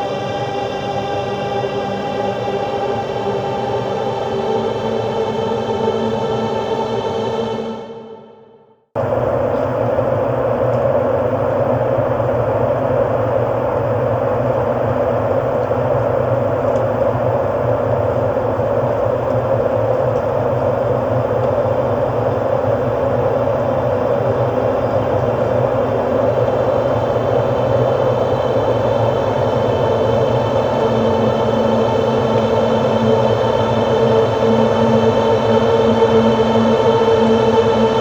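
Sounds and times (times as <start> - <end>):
machine hum drone: 9.0 - 38.0.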